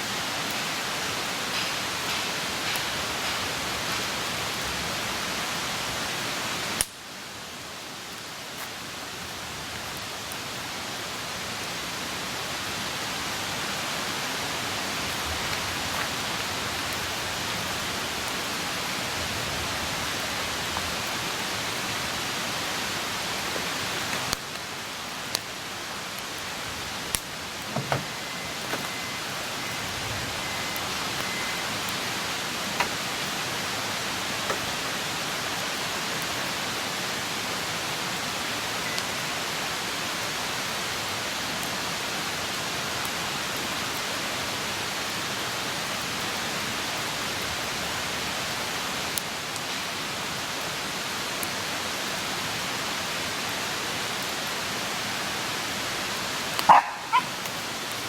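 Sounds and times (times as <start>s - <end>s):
fire hissing: 0.0s - 7.0s
campfire crackling and popping: 1.5s - 4.2s, 6.8s - 7.0s, 23.1s - 29.5s, 56.5s - 58.0s.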